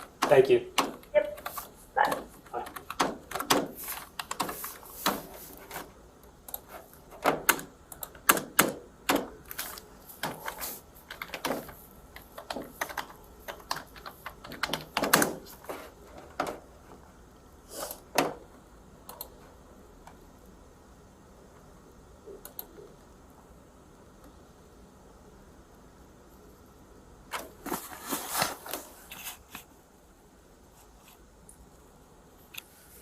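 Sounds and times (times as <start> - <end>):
computer keyboard typing: 0.0 - 5.8, 6.4 - 15.6.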